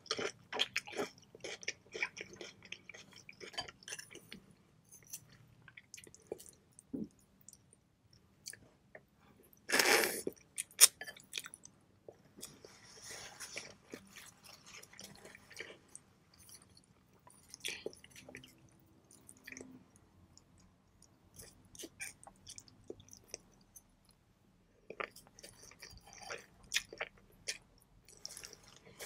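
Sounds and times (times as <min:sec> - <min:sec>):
wet chewing of noodles: 0:00.0 - 0:04.4, 0:24.9 - 0:29.0.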